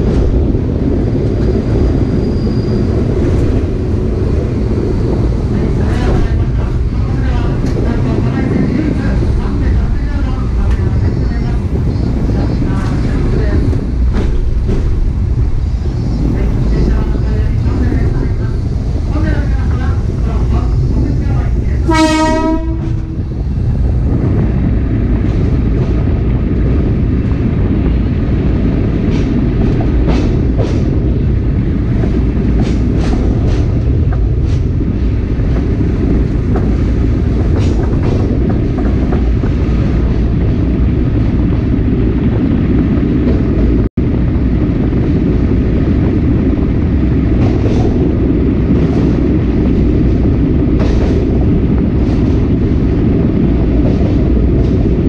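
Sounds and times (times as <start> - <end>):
train wheels rumbling on rail: 0.0 - 55.0
train horn: 21.8 - 23.2.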